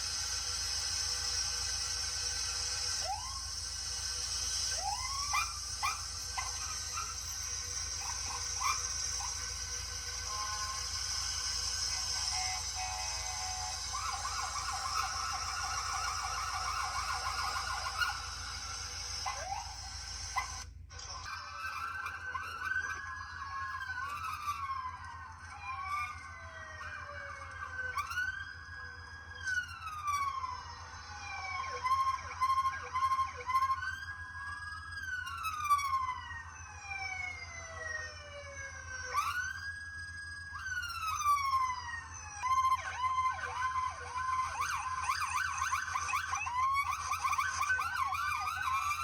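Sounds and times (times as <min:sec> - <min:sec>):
steady low hum: 0:00.0 - 0:21.3
police motorcycle siren: 0:00.0 - 0:49.0.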